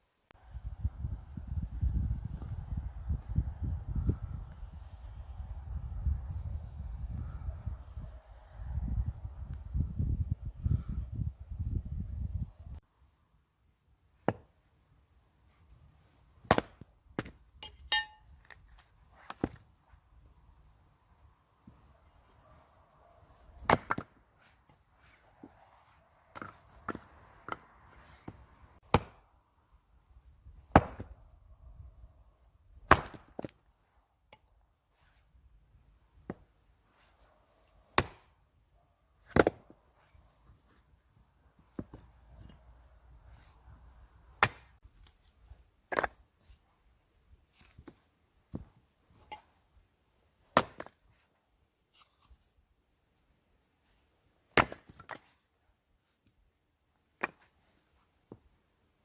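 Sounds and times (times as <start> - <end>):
axe splitting firewood: 16.4 - 19.6, 23.5 - 24.8, 26.3 - 29.3, 30.5 - 31.3, 32.8 - 33.7, 37.9 - 38.4, 39.2 - 39.7, 44.3 - 45.2, 45.9 - 46.4, 50.5 - 51.1, 54.5 - 55.4.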